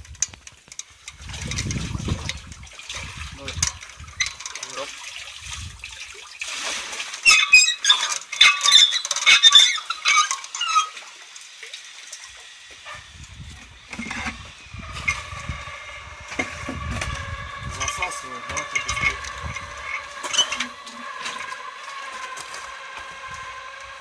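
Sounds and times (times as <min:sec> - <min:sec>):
water splashing and sloshing: 0:00.0 - 0:24.0
squeaky high sounds: 0:07.2 - 0:11.0.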